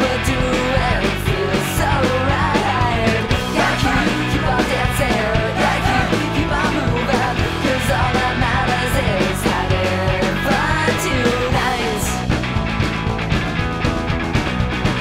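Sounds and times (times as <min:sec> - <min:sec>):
punk rock band playing: 0:00.0 - 0:15.0.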